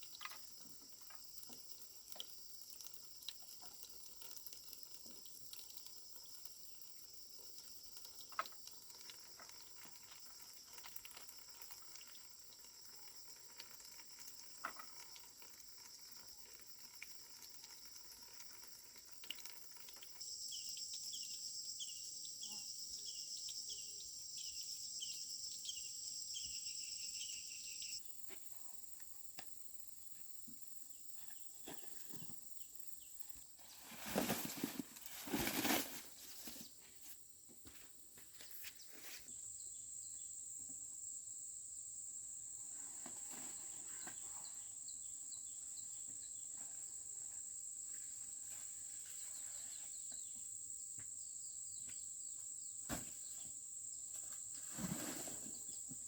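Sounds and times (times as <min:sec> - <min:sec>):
insects buzzing and chirping: 0:00.0 - 0:56.0
dry corn plants rustling: 0:33.6 - 0:39.3.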